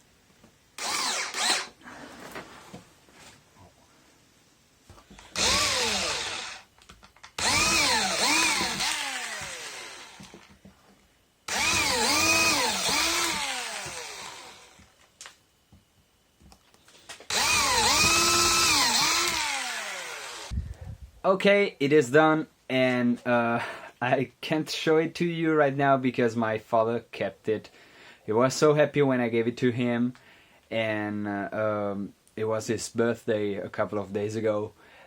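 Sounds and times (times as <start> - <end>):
cordless drill motor revving: 0.8 - 1.8, 5.2 - 6.7, 7.4 - 10.5, 11.5 - 14.9, 17.3 - 20.6.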